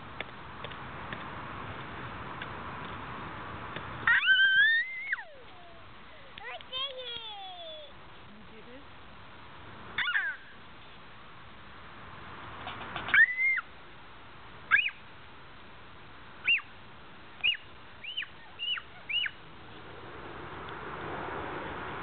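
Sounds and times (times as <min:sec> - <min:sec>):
bird calling: 0:10.0 - 0:10.9, 0:13.1 - 0:13.7, 0:14.7 - 0:15.0, 0:16.4 - 0:16.7, 0:17.4 - 0:19.5.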